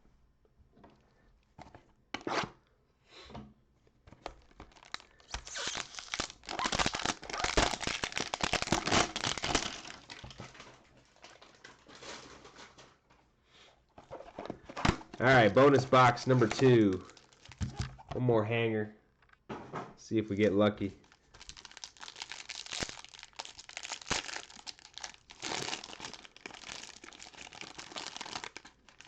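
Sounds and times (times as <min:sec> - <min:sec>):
packaging tearing and crinkling: 0:04.2 - 0:12.8, 0:14.8 - 0:18.1, 0:21.0 - 0:29.0.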